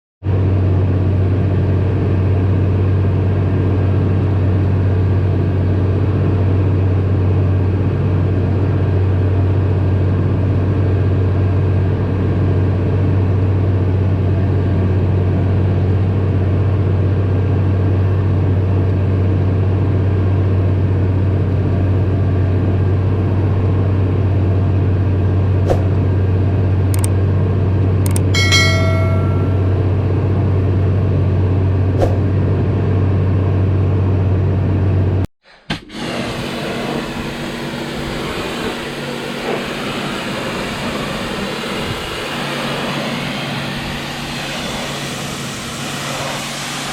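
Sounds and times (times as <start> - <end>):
tractor engine droning: 0.2 - 35.2, 36.0 - 46.9
sharp clicks: 27.0 - 27.2, 28.1 - 28.3.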